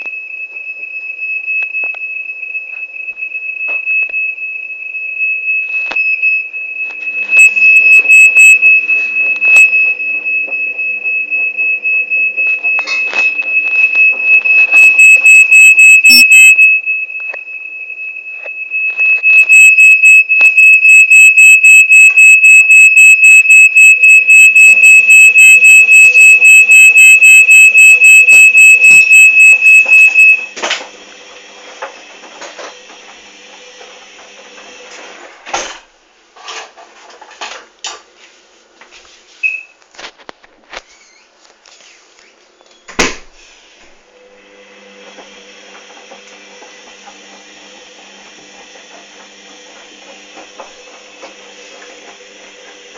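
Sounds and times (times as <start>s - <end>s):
electronic alarm beeping: 0.0s - 30.5s.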